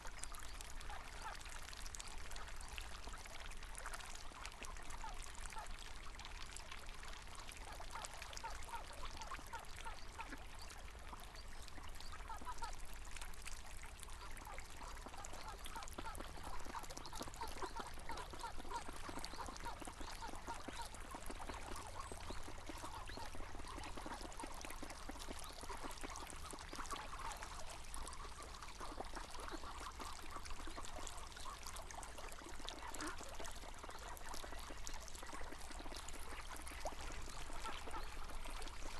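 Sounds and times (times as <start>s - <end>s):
river water flowing: 0.0s - 38.9s
ducks quacking: 14.8s - 30.7s.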